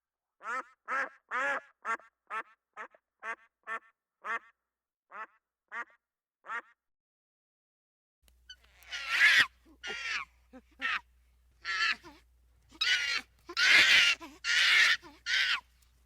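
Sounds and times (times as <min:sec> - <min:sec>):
duck quacking: 0:00.4 - 0:04.5, 0:05.1 - 0:06.8, 0:08.8 - 0:11.0, 0:12.8 - 0:15.6.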